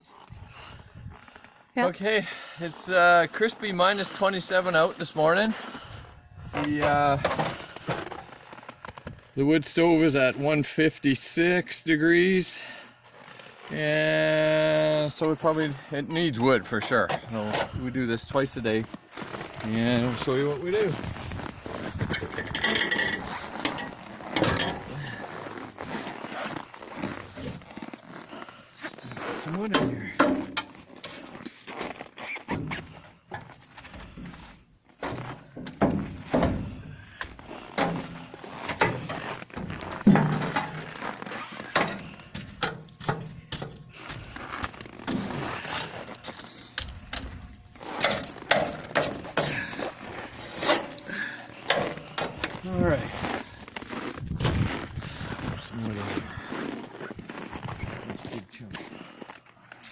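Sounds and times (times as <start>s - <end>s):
firewood knocking and clunking: 29.7s - 30.8s, 32.5s - 49.9s
metal furnace door clanking: 40.0s - 40.9s.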